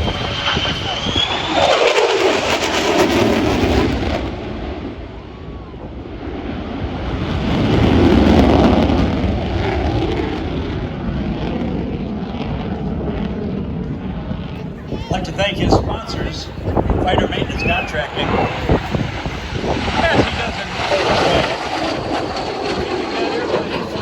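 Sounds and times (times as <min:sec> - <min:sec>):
airplane flying low past: 0:00.0 - 0:24.0.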